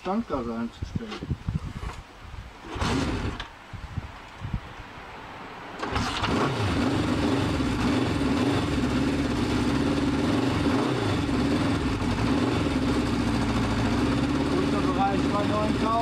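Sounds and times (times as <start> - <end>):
motorcycle engine starting and idling: 2.6 - 3.6, 5.8 - 16.0.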